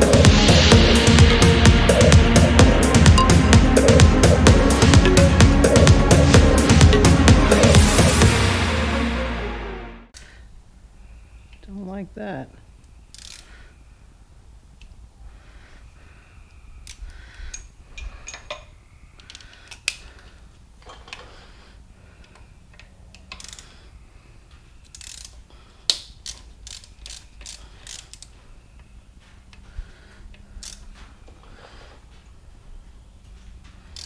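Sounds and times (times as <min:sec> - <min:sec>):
ratchet wrench clicking: 0:13.1 - 0:13.4, 0:23.2 - 0:23.6, 0:24.8 - 0:28.3, 0:30.6 - 0:30.8.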